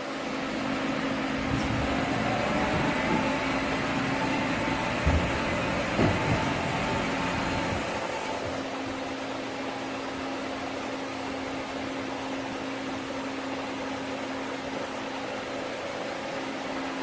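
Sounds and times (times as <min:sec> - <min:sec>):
machine hum: 0:00.0 - 0:09.5.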